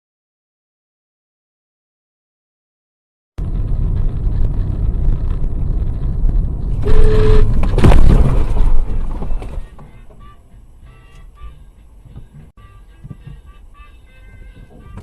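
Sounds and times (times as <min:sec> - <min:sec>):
car road rumble: 0:03.4 - 0:15.0
car horn beep: 0:06.8 - 0:07.6, 0:09.4 - 0:15.0
loud crash impact: 0:06.8 - 0:09.7.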